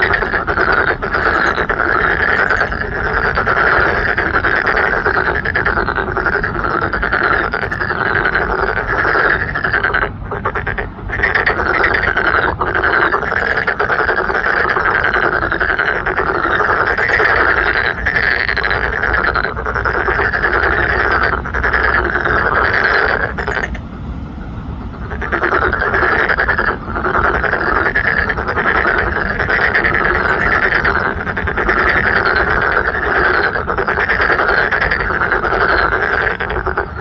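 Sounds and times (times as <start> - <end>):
frogs croaking in chorus: 0.0 - 37.0.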